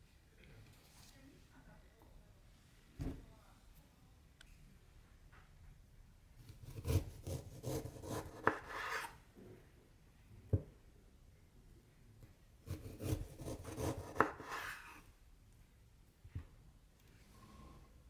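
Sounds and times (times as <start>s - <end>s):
scraping radish: 6.9s - 9.2s, 12.7s - 15.0s.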